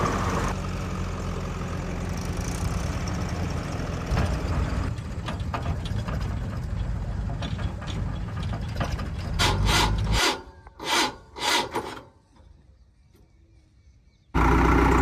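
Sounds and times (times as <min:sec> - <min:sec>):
diesel engine running: 0:00.0 - 0:10.2, 0:14.4 - 0:15.0.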